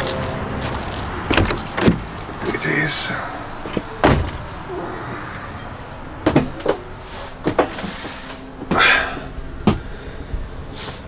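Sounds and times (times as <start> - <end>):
door and fittings clunking: 1.2 - 2.6, 3.5 - 4.7
breathy rustle: 4.4 - 6.2, 6.8 - 11.0.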